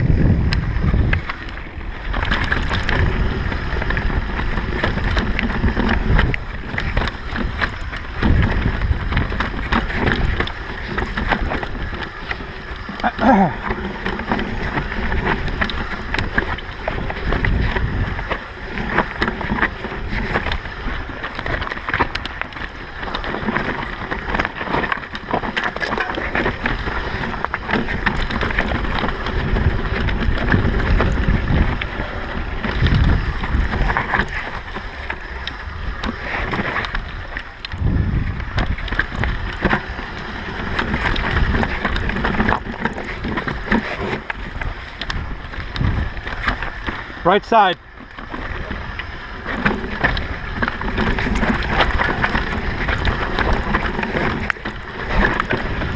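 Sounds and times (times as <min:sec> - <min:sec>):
bike rattling over bumps: 0:00.0 - 0:55.9
bike tyre noise: 0:00.0 - 0:55.9
wind gusting over microphone: 0:00.0 - 0:55.9.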